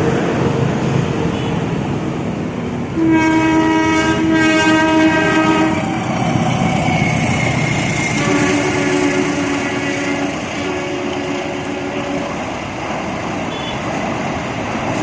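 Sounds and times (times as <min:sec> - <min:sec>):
train running by: 0:00.0 - 0:15.0
train horn: 0:03.0 - 0:06.0, 0:07.4 - 0:12.5.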